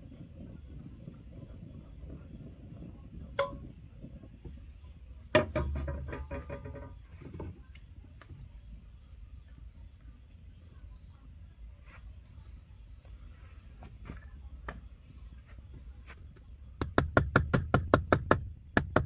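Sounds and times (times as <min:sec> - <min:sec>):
metal tap: 0:03.4 - 0:03.6
metal clanging: 0:05.4 - 0:07.0.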